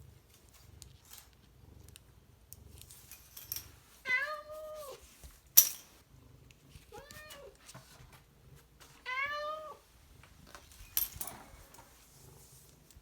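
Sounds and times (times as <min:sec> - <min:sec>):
cat meowing: 0:04.1 - 0:05.0, 0:06.9 - 0:07.6, 0:09.0 - 0:09.8.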